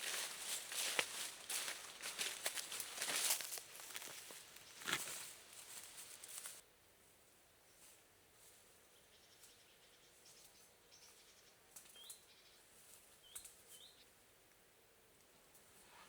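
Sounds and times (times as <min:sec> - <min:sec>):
small bird chirping: 0:09.0 - 0:12.6, 0:13.2 - 0:14.1.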